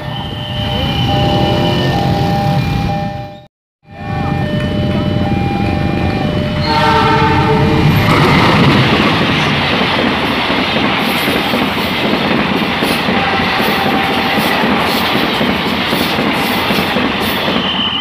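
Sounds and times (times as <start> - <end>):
train passing with wheel clatter: 4.2 - 18.0
train horn: 6.6 - 8.0, 13.0 - 15.0.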